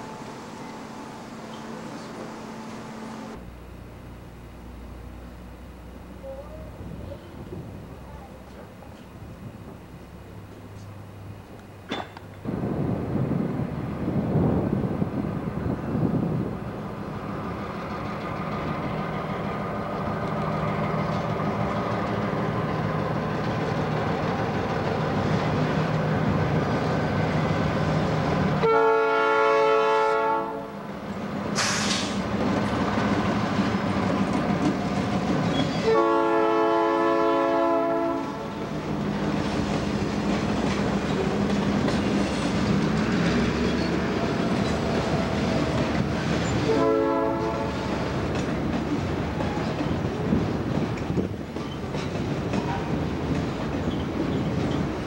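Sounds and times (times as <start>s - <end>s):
diesel locomotive engine: 0.0s - 55.0s
train horn blasts: 28.6s - 30.8s, 35.7s - 38.6s, 46.6s - 47.9s
freight cars rolling over rail joints: 38.8s - 46.7s, 47.4s - 55.0s.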